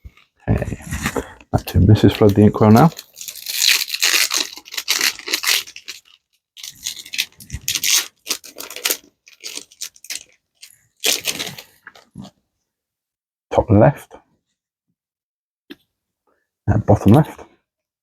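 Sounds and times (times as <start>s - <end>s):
foil wrapper tearing and crinkling: 2.0s - 12.2s.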